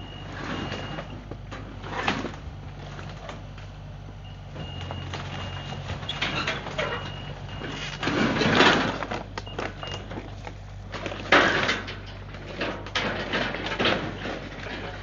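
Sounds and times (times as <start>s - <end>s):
heavy equipment engine running: 0.0s - 15.0s
demolition debris crashing: 8.0s - 15.0s.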